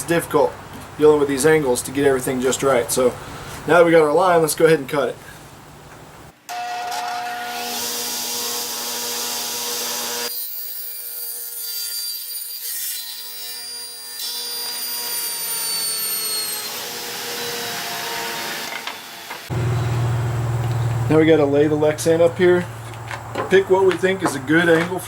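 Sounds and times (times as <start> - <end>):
electric saw cutting wood: 6.5 - 20.1.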